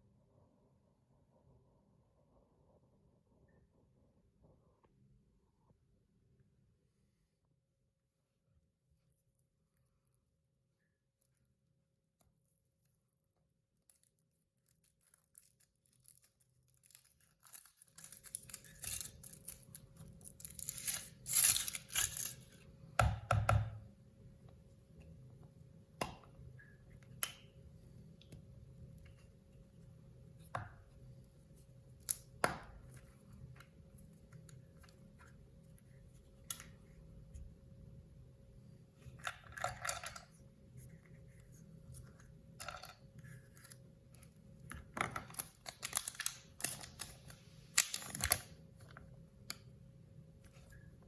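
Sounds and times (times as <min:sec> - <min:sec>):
foil wrapper crinkling and tearing: 0:13.9 - 0:22.6, 0:45.3 - 0:48.5.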